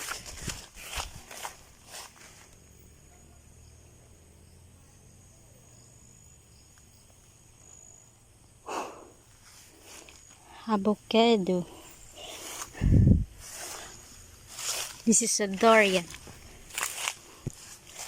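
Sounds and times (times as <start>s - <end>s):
rustling footsteps: 0.0s - 2.6s, 12.1s - 18.0s
insect chirring: 0.0s - 18.0s.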